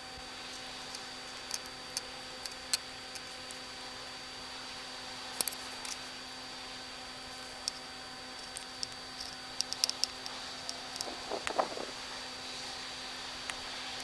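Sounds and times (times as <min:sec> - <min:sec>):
steady hum: 0:00.0 - 0:14.0
small objects clicking and tapping: 0:00.8 - 0:03.3, 0:07.6 - 0:12.0.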